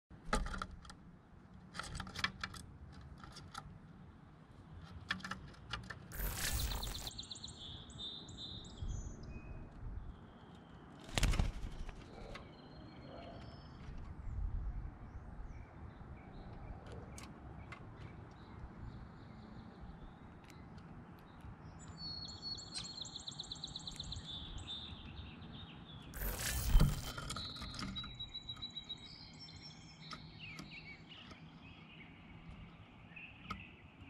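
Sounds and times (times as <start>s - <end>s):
birds whistling: 6.1s - 10.3s, 21.7s - 34.0s.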